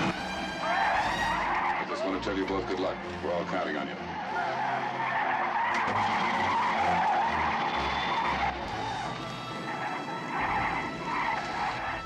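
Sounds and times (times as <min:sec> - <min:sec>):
tires screeching on runway: 0:00.0 - 0:02.6, 0:03.2 - 0:12.0.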